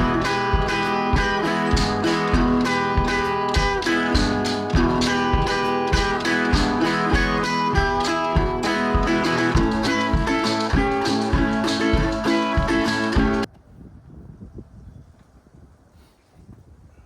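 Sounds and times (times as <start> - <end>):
strummed country acoustic guitar: 0.0 - 13.5.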